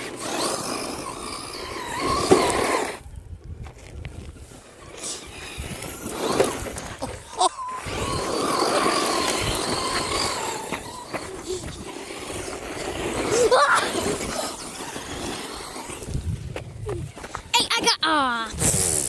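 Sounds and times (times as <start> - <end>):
electric motor whining: 0.0 - 3.0, 4.8 - 16.3
tyres rustling on dirt: 0.0 - 18.0.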